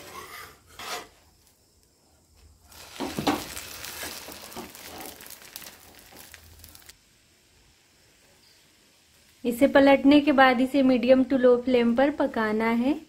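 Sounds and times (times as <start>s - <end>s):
spatula scraping pan: 0.0s - 1.2s
omelet sizzling in oil: 0.0s - 13.0s.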